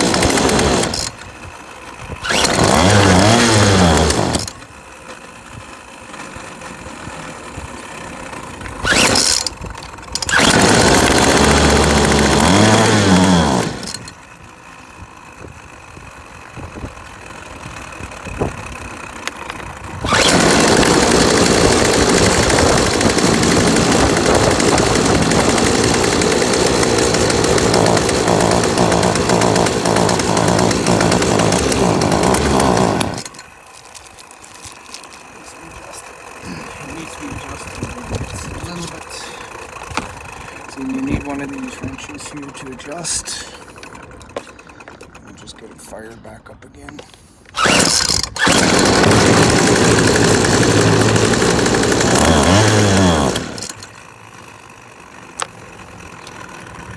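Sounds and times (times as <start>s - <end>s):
trimmer engine revving: 0.0s - 1.3s, 2.1s - 4.7s, 8.7s - 14.2s, 20.0s - 45.2s, 47.5s - 56.6s.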